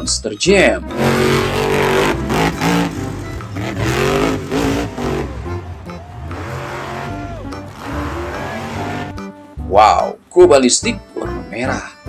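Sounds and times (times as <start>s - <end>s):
background music: 0.0s - 12.0s
monster truck engine revving: 0.9s - 9.2s.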